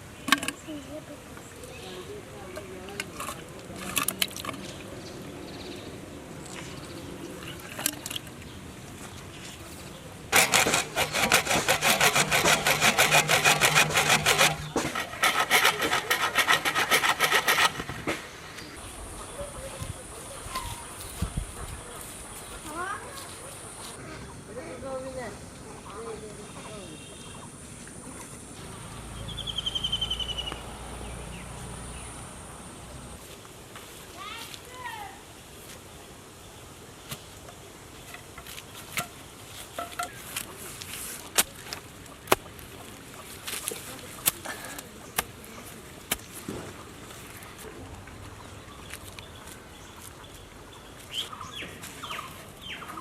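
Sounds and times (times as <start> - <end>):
bird chirping: 29.1 - 32.3.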